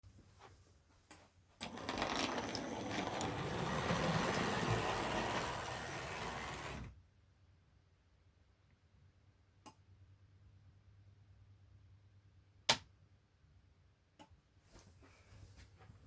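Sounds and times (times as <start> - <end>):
model tram motor whirring: 1.6 - 6.9
wheels clicking over rails: 1.6 - 6.9.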